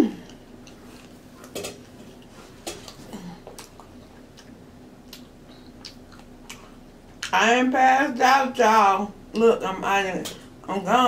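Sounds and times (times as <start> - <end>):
faint steady hum: 0.0 - 11.0
wet mouth clicks and lip smacks: 3.6 - 6.7.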